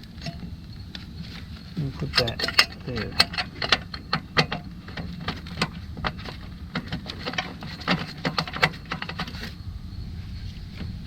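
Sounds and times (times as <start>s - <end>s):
low steady hum: 0.0s - 11.0s
metallic clicks of tools: 2.1s - 5.7s.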